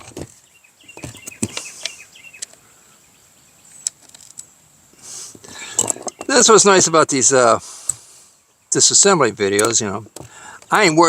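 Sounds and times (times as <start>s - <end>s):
faint bird chirps: 0.0s - 4.4s, 5.0s - 6.5s
hand tools clicking on parts: 9.5s - 11.0s.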